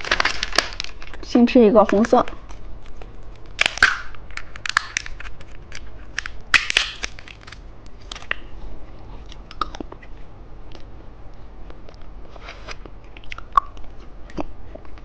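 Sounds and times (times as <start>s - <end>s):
hard candy crunching between teeth: 2.4s - 8.4s, 9.2s - 10.1s, 12.7s - 15.0s.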